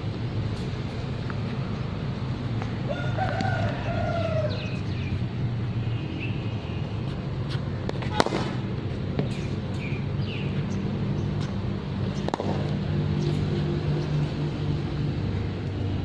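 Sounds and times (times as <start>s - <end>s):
bat striking cricket ball: 7.9s - 8.6s, 12.2s - 12.7s.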